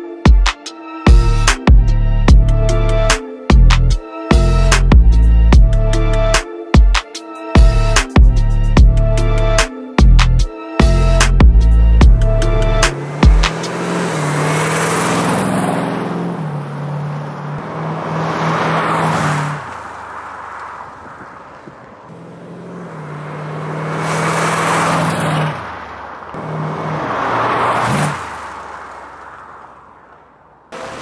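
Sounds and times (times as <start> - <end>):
car engine driving past: 12.6 - 31.0.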